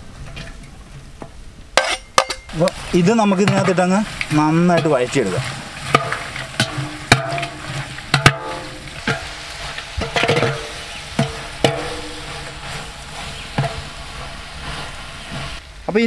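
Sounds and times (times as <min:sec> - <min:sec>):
metal pot ringing: 0:01.8 - 0:02.6, 0:05.8 - 0:09.3, 0:10.0 - 0:13.9
spatula scraping metal pot: 0:01.8 - 0:15.6
food sizzling in oil: 0:01.8 - 0:15.7.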